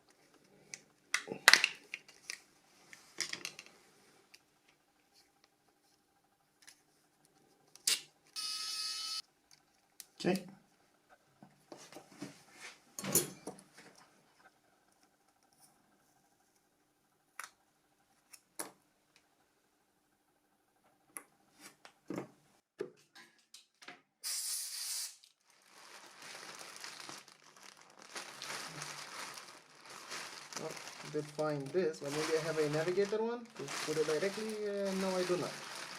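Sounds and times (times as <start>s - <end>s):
crinkling rustle of packaging: 25.2s - 35.9s.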